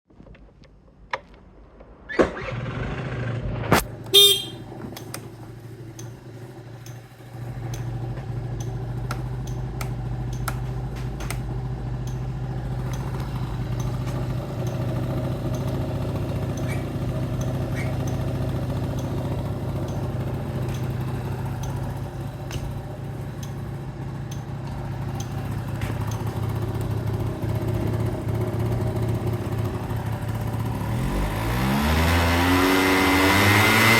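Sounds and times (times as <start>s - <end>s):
scooter engine idling: 2.5s - 31.4s
short horn beep: 4.1s - 4.8s.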